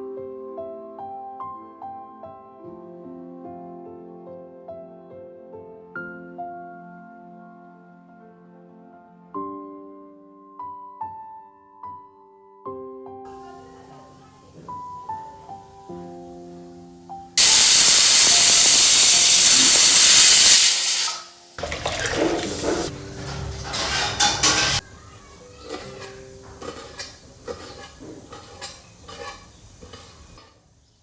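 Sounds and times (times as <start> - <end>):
hiss of steam or spattering: 17.4 - 21.6
sizzling: 17.4 - 31.0
utensils clattering: 20.5 - 30.6.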